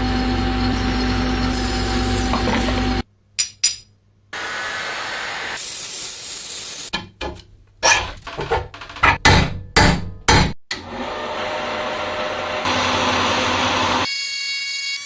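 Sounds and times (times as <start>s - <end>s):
spray hissing: 4.4s - 6.9s
sharp metallic knocks: 9.1s - 10.6s.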